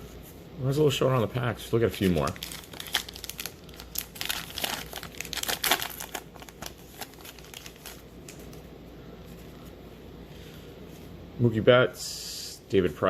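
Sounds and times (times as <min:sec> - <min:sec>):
card pack wrapper crinkling: 0:01.9 - 0:08.6.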